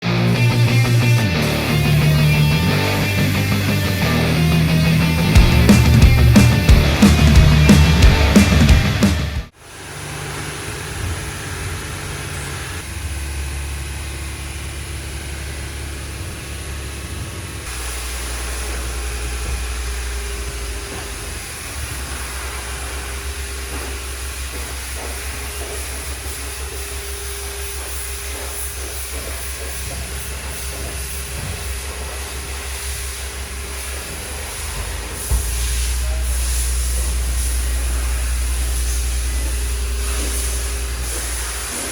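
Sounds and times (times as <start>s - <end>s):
steady machine hum: 0.0s - 41.9s
hiss: 15.4s - 41.9s.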